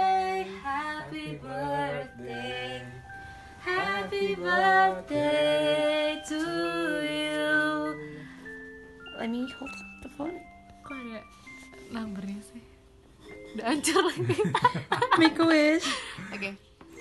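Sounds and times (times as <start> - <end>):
people singing together: 0.0 - 8.2.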